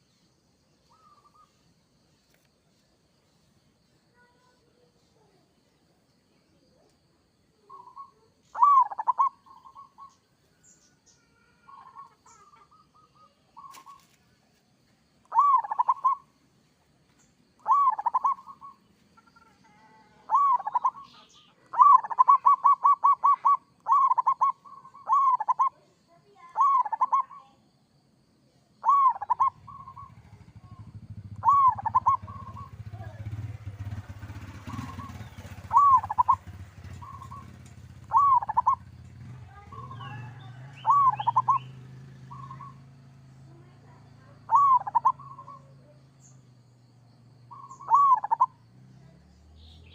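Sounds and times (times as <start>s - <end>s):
dove cooing: 7.6s - 10.2s, 11.3s - 14.1s, 15.3s - 16.3s, 17.6s - 25.8s, 26.4s - 27.4s, 28.8s - 42.9s, 44.3s - 46.0s, 47.5s - 48.6s
low steady rumble: 29.3s - 49.8s.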